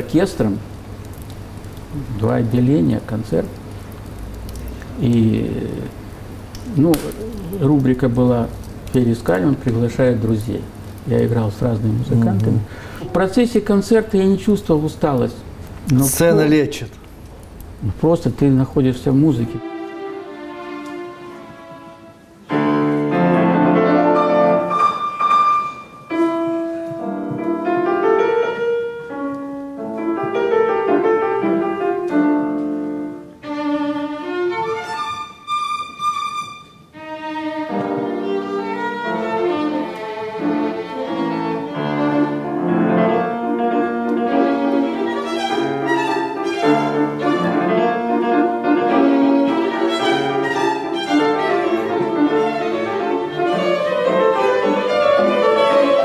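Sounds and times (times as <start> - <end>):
piano accompaniment: 0.0 - 56.0
classical violin: 19.6 - 28.7, 31.5 - 56.0.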